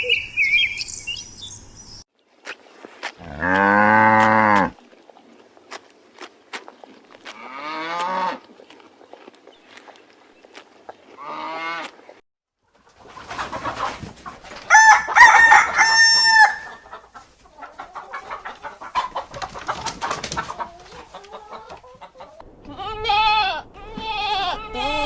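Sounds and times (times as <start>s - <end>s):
hens clucking: 12.8s - 22.4s
rooster crowing: 14.7s - 16.9s.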